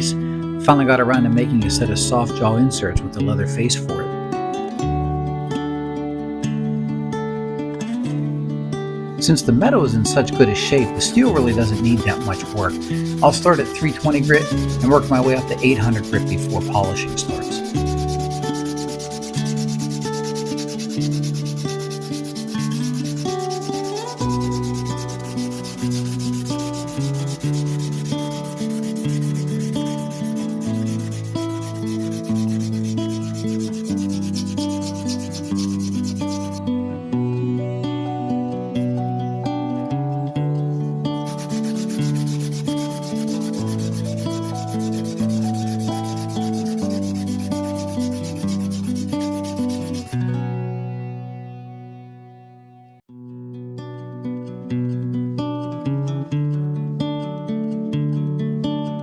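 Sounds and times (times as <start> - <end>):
background music: 0.0 - 53.0
sandpaper rubbing on metal: 9.6 - 36.6, 41.2 - 50.3.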